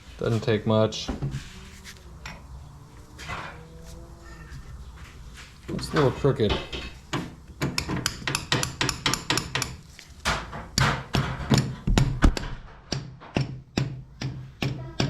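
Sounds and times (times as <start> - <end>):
hammer tapping steel rod: 6.7 - 9.8, 12.9 - 15.0.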